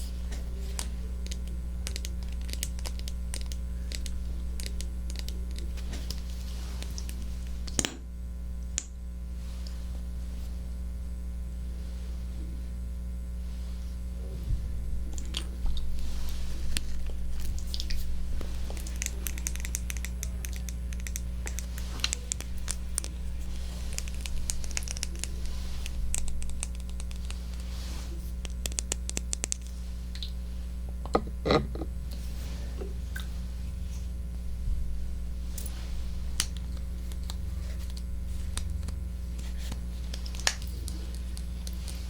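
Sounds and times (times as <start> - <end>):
steady low hum: 0.0 - 42.0
crisp clicks and crackles: 0.6 - 7.8, 16.7 - 30.4, 35.6 - 42.0.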